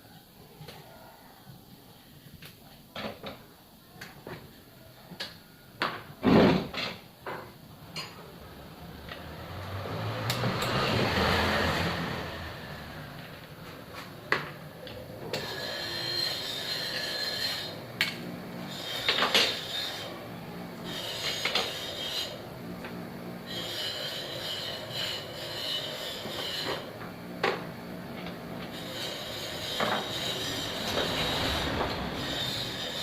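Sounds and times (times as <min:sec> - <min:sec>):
high-pitched metal scraping: 0:15.3 - 0:17.8, 0:18.6 - 0:20.2, 0:20.8 - 0:22.4, 0:23.5 - 0:26.9, 0:28.2 - 0:33.0.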